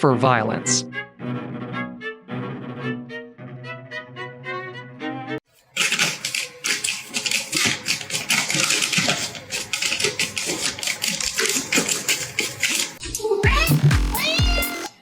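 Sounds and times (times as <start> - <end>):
rapid clicking and tapping: 5.8 - 14.9.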